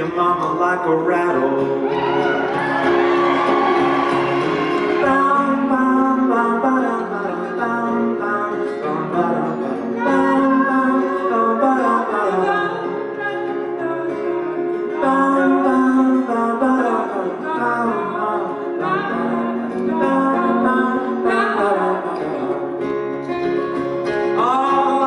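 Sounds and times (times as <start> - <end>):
person singing: 0.0 - 22.9, 24.1 - 25.0
strummed and plucked guitar: 0.0 - 25.0.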